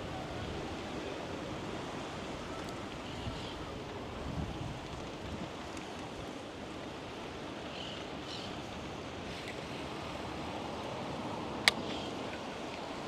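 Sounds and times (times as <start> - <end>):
wind on microphone: 0.0 - 6.4.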